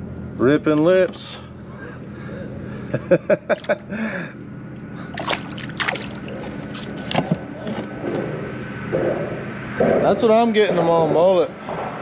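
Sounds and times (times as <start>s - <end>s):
water splashing around kayak: 5.2s - 7.1s.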